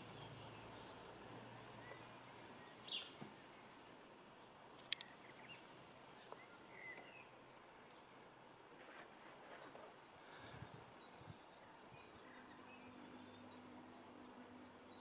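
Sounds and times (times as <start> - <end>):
faint bird chirps: 6.2 - 7.4.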